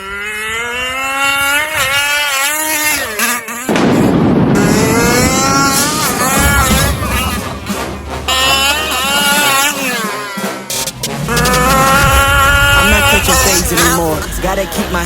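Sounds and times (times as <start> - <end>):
toy car motor buzzing: 0.0 - 3.7, 8.2 - 13.9
loud rough noise: 0.0 - 15.0.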